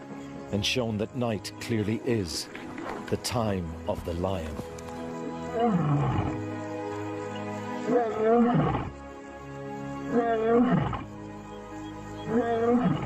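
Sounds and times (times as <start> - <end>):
music with long held notes: 0.0 - 13.0
lion roaring: 5.5 - 6.4, 7.9 - 8.9, 10.1 - 11.1, 12.2 - 13.0.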